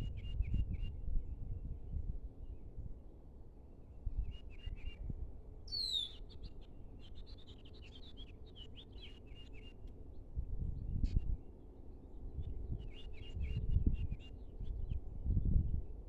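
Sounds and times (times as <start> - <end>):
wind rumble on microphone: 0.0 - 3.2, 3.9 - 6.0, 10.2 - 11.5, 12.1 - 16.0.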